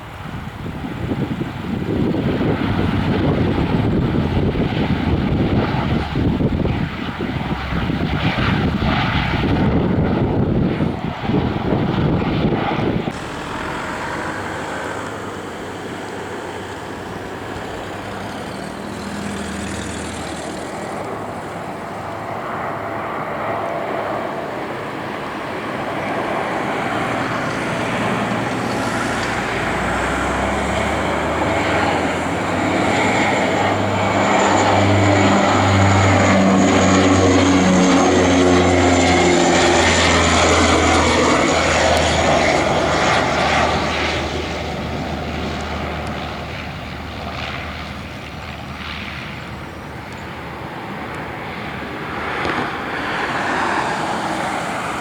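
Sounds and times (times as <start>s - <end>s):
aircraft turbine whine: 0.0s - 55.0s
low engine drone: 2.1s - 55.0s.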